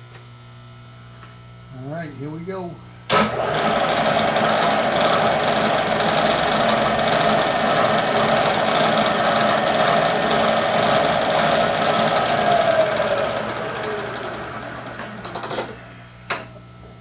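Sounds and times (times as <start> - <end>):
machine tool motor running: 3.1 - 15.8.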